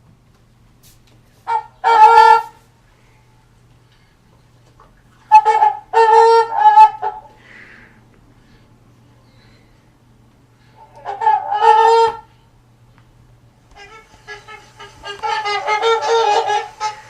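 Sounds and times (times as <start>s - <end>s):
swan honking calls: 1.4s - 2.7s, 5.2s - 7.6s, 10.7s - 12.4s, 13.8s - 17.0s.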